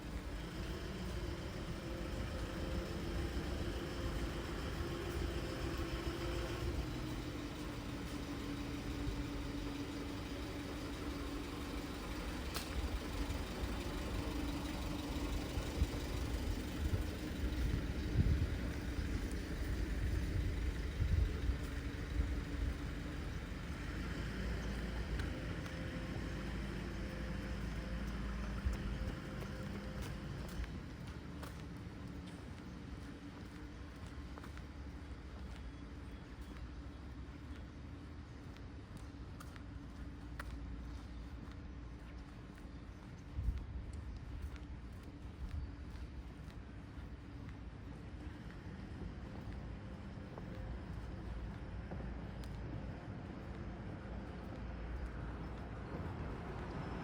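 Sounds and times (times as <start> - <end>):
vehicle engine rumbling: 0.0 - 57.0.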